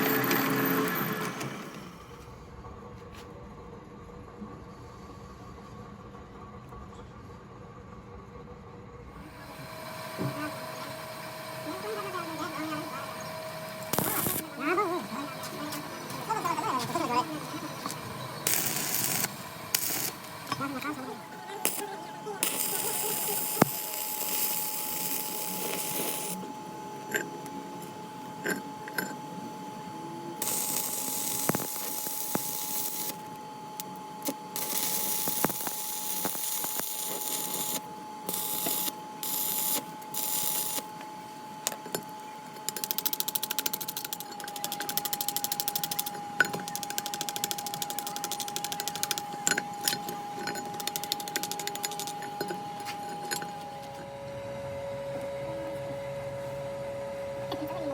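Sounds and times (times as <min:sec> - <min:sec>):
steady high whine: 0:09.2 - 0:57.9
hissing bursts of tool on metal: 0:17.8 - 0:20.5, 0:21.6 - 0:26.4, 0:30.4 - 0:33.3, 0:34.2 - 0:40.9.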